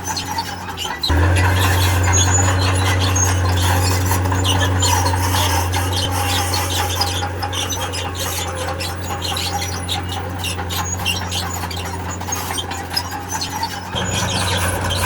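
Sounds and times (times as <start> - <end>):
steel tracks squeaking and scraping: 0.0 - 15.0
low engine drone: 1.1 - 10.5, 13.9 - 15.0.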